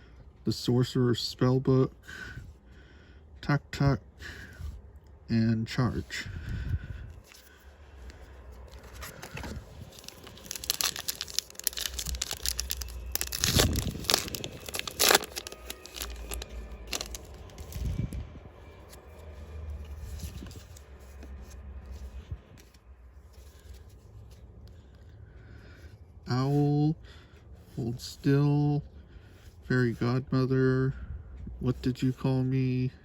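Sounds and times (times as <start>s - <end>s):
wrapper rustling: 8.5s - 18.0s
foil wrapper tearing: 8.7s - 18.0s.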